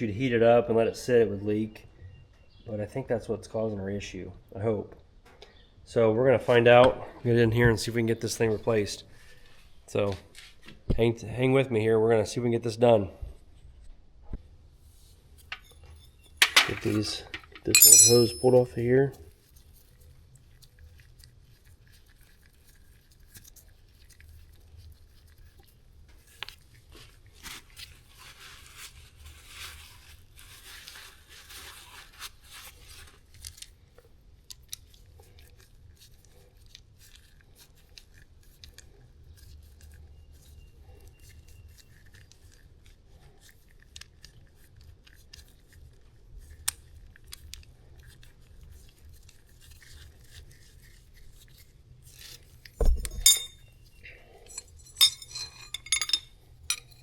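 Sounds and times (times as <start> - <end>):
clinks of metal tools: 16.4 - 18.8, 52.8 - 53.6, 54.4 - 57.0
scraping and rubbing: 54.4 - 57.0.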